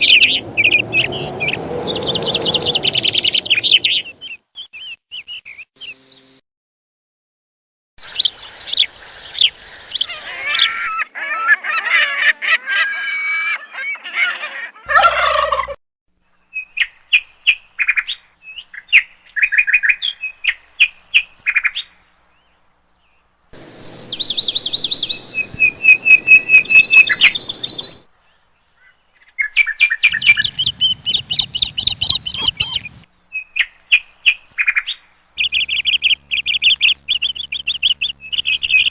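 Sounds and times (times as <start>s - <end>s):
birds chirping and trilling: 0.0s - 6.4s, 8.0s - 15.6s, 16.3s - 38.9s
background hiss: 8.0s - 10.7s, 16.2s - 29.3s.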